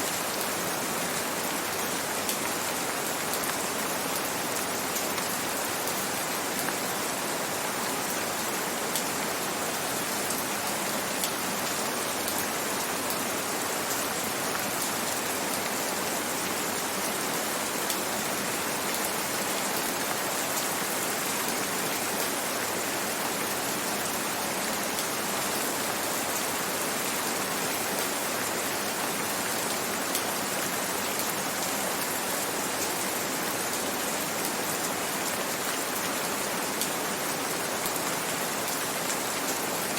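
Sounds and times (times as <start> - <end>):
gentle rain: 0.0 - 39.9.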